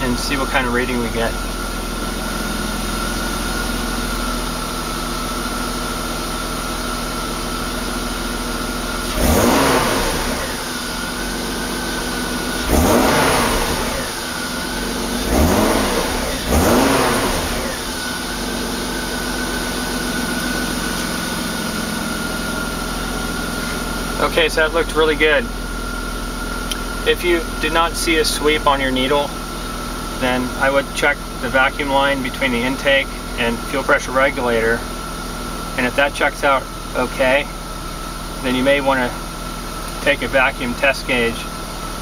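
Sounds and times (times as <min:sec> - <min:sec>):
car engine idling and revving: 0:00.0 - 0:42.0.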